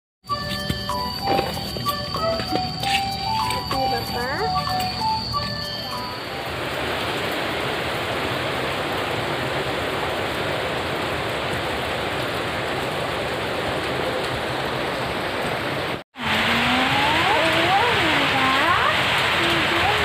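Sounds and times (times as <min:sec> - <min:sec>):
steady rain falling: 0:00.3 - 0:20.0
person speaking: 0:00.5 - 0:06.3.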